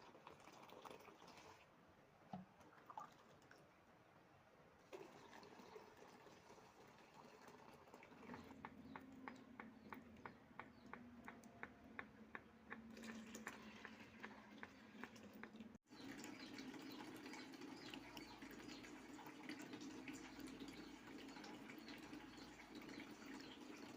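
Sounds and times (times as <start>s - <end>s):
milk squirting into a pail: 4.8s - 8.6s, 12.8s - 23.9s.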